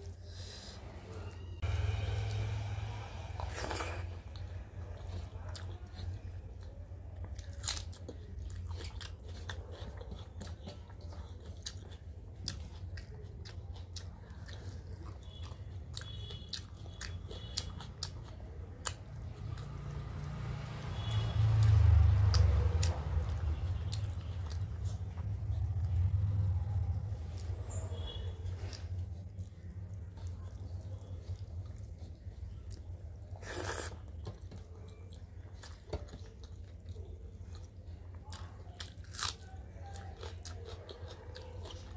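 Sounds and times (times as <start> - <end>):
chewing food: 0.0 - 41.9
low hum: 0.9 - 5.0.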